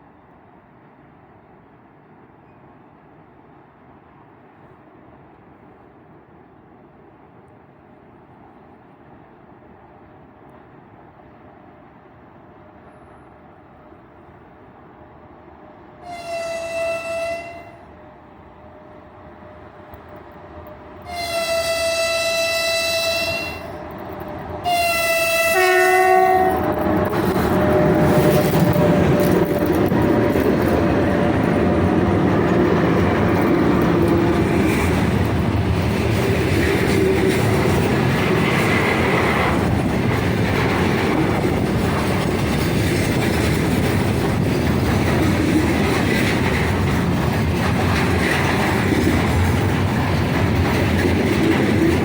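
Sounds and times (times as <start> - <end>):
freight train rolling and clattering: 0.0 - 52.0
locomotive horn blasts: 16.0 - 17.9, 21.0 - 23.8, 24.6 - 26.7.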